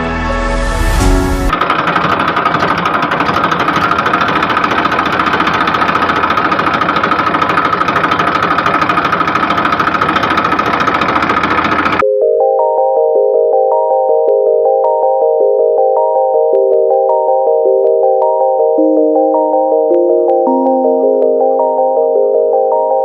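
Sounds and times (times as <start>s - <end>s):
small tractor engine knocking: 1.5s - 12.0s.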